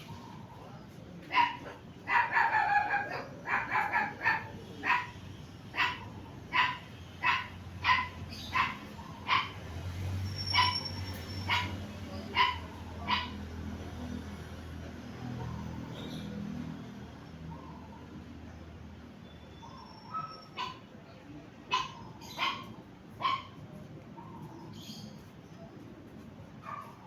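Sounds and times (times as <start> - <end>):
small dog yapping: 1.3 - 5.1, 5.8 - 9.6, 10.4 - 13.4, 21.7 - 23.6.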